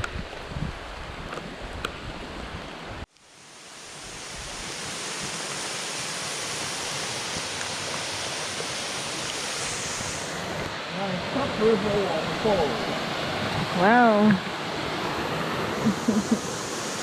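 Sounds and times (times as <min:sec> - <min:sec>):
low wind rumble: 0:00.0 - 0:03.1
river rushing: 0:02.6 - 0:17.0
waterfall rushing: 0:03.4 - 0:17.0.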